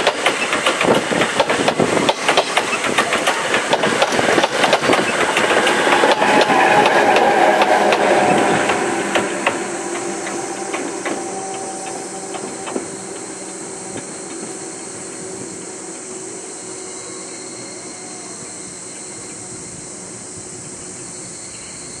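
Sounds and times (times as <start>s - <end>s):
wheels clicking over rail joints: 0.0s - 16.4s
high steam hiss: 0.0s - 22.0s
steam train rumble: 0.0s - 22.0s.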